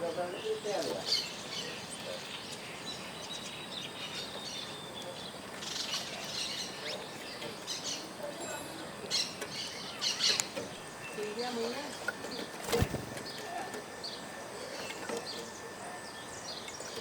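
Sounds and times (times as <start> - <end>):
birds chirping: 0.0 - 17.0
steady outdoor hiss: 0.0 - 17.0.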